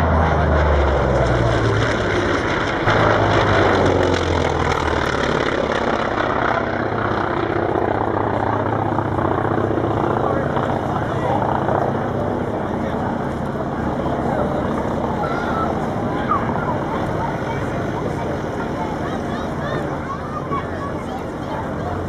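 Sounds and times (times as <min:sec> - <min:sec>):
propeller aircraft flying past: 0:00.0 - 0:22.0.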